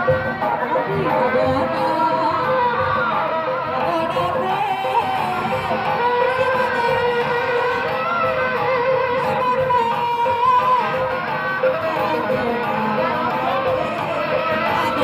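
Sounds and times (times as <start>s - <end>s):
steady percussion: 0.0s - 15.0s
wavering melody line: 0.0s - 15.0s.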